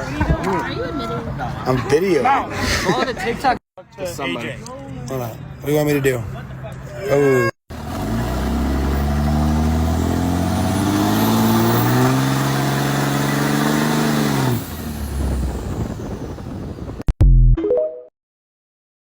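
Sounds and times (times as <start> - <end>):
truck engine accelerating: 7.7 - 17.0.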